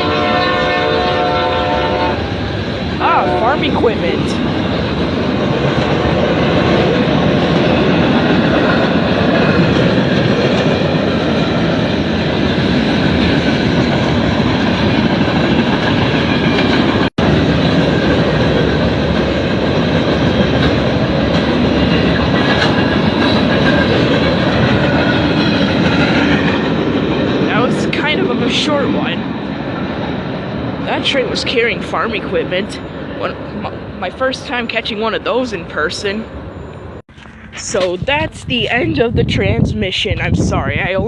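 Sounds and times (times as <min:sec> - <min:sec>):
freight train wheels clattering: 0:01.6 - 0:33.3.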